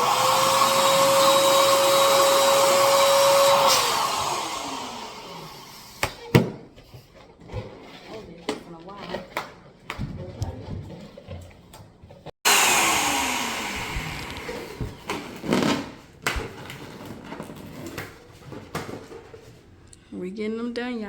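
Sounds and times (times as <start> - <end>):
balloon inflator motor blowing: 0.0 - 6.2, 12.4 - 16.0.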